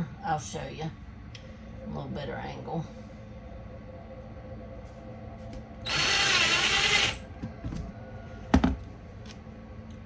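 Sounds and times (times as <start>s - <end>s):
power drill running: 5.8s - 7.2s.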